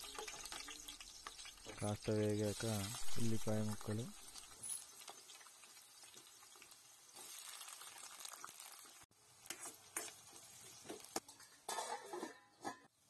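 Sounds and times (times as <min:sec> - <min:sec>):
onions sizzling in hot oil: 0:00.0 - 0:11.9
steel spoon scraping a pan: 0:04.3 - 0:05.2, 0:09.4 - 0:13.0.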